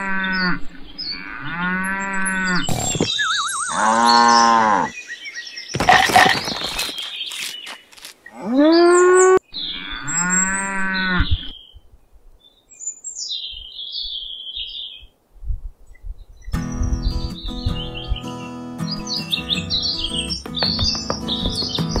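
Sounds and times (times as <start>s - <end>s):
cow mooing: 0.0s - 3.1s, 3.7s - 4.9s, 8.3s - 11.5s
faint high bird chirps: 2.8s - 5.8s.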